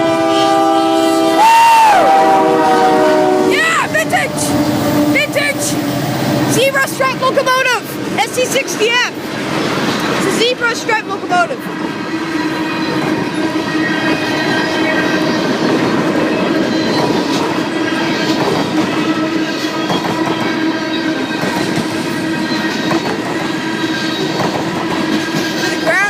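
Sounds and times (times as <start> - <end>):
train wheels rumbling on rails: 0.0 - 26.0
ringing wheel squeal: 12.3 - 17.4, 22.3 - 24.4.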